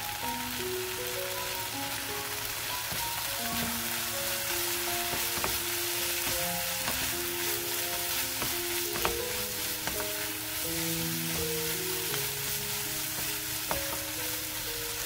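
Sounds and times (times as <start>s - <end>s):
soft background music: 0.0s - 15.0s
stir-fry sizzling in a pan: 0.0s - 15.0s
wooden spatula scraping a pan: 2.6s - 15.0s
spatula knocks: 5.1s - 7.1s, 8.4s - 10.3s.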